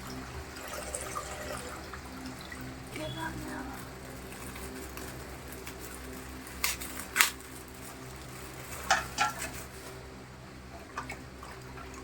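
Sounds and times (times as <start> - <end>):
plastic bag crackling: 2.9 - 10.1.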